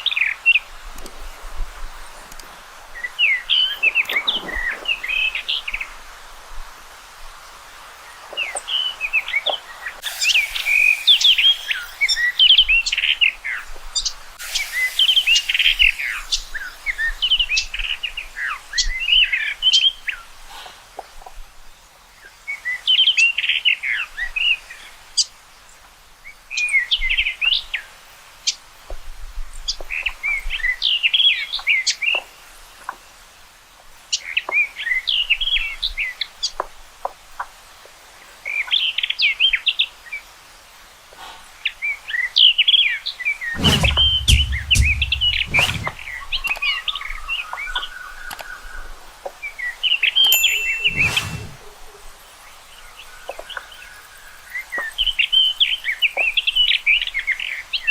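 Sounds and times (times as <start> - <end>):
rock thrush singing: 50.2 - 51.6.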